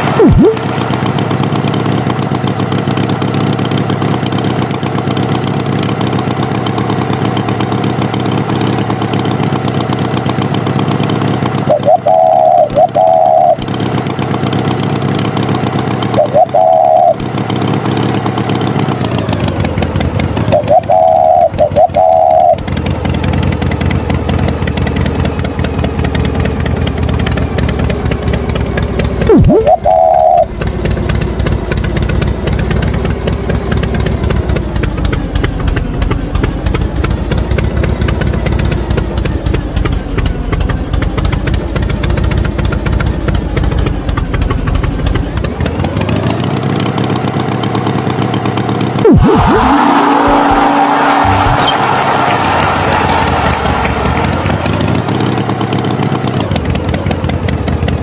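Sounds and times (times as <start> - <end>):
tractor engine running: 0.0 - 58.0
short beeps: 0.2 - 0.6, 29.3 - 30.5.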